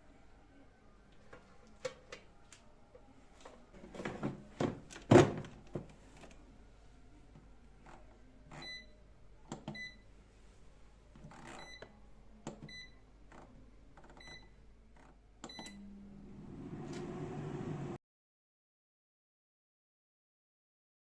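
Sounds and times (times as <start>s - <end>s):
fan motor hum: 15.9s - 18.0s.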